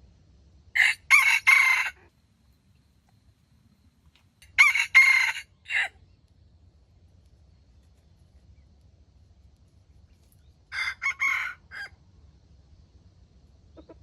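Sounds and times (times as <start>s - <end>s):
rooster crowing: 0.8s - 2.1s, 4.4s - 6.0s, 10.7s - 12.0s.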